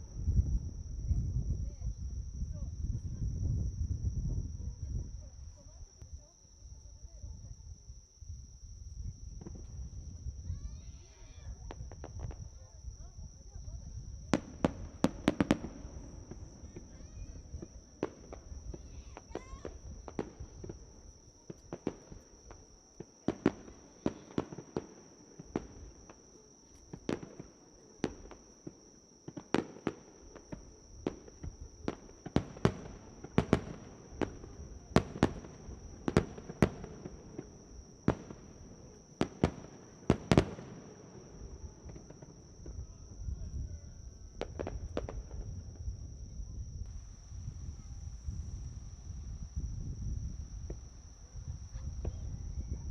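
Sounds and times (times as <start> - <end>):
insect trill: 0.0 - 52.9
fireworks bangs: 9.4 - 46.0.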